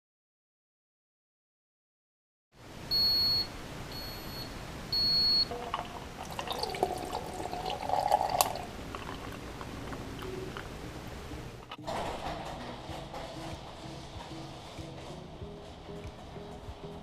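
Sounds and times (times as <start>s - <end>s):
water sloshing: 5.4s - 10.8s.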